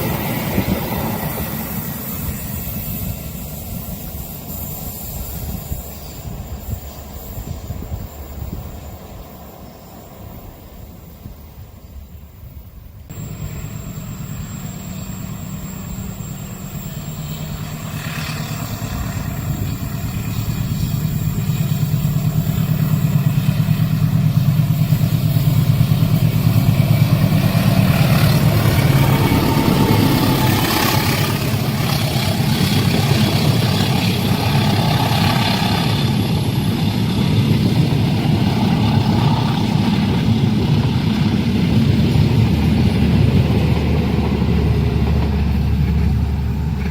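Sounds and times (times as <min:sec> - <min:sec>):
diesel locomotive engine rumble: 0:00.0 - 0:46.9
train wheels and carriages rattling: 0:00.0 - 0:46.9.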